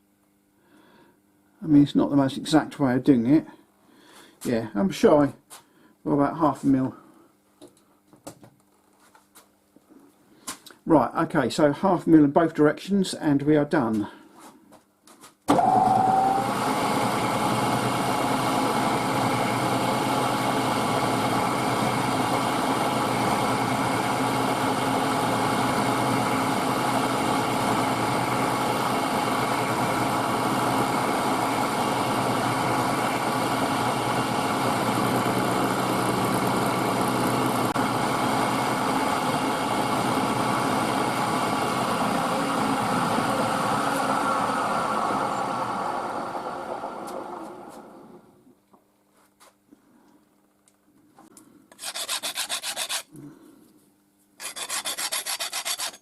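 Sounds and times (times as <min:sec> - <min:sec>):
milling machine cutting metal: 0:15.5 - 0:44.2
machine winding down whine: 0:15.5 - 0:48.2.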